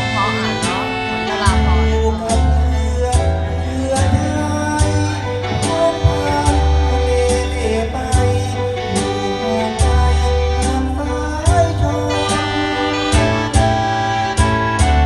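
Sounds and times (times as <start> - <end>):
steady drum beat: 0.0 - 10.8
person singing with vibrato: 0.0 - 14.4
bass: 0.0 - 15.0
guitar: 0.0 - 15.0.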